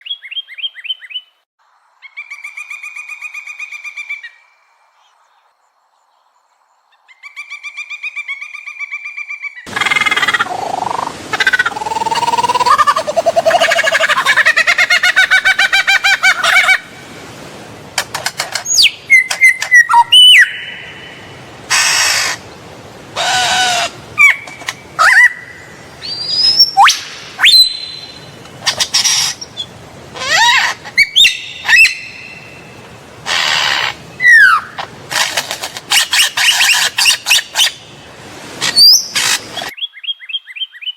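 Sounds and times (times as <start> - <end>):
harsh screechy bird calls: 18.2 - 22.5, 23.2 - 32.6, 33.2 - 37.8, 38.6 - 39.8
bird whistles swooping in pitch: 18.7 - 20.8, 25.0 - 28.2.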